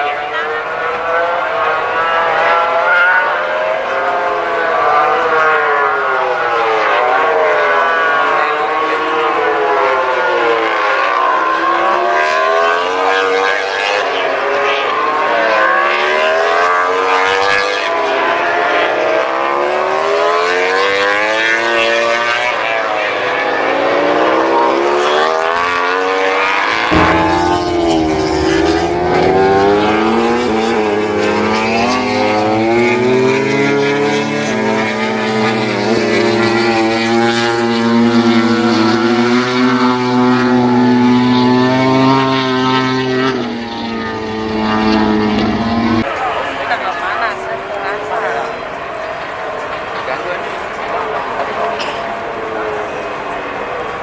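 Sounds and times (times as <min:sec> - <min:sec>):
racing motorcycle engines screaming: 0:00.0 - 0:54.0
steady low drone: 0:26.9 - 0:32.7.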